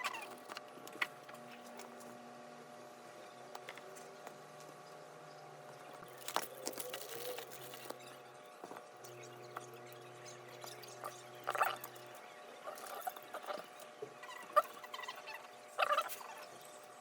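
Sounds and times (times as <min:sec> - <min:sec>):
electrical hum: 0:00.0 - 0:17.0
small tools clicking and scraping: 0:06.0 - 0:09.7.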